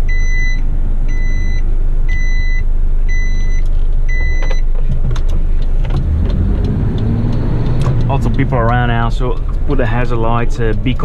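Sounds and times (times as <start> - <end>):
truck reversing alarm beeps: 0.0 - 4.7
diesel engine running: 0.0 - 11.0.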